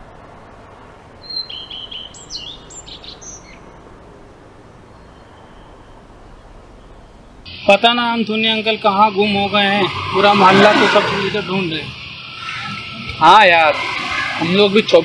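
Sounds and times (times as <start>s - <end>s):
birds chirping: 0.7s - 7.7s.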